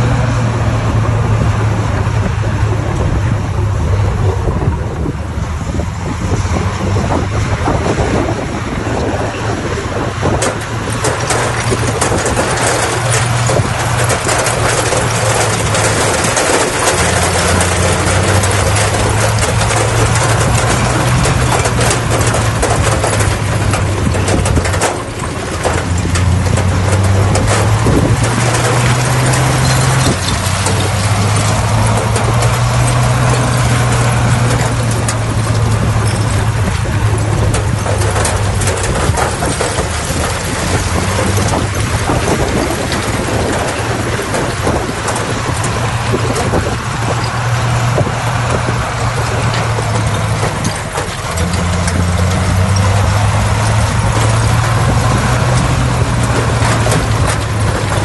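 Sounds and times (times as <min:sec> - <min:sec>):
dense rattling clatter: 0:00.0 - 0:58.0
diesel engine running under load: 0:00.0 - 0:58.0.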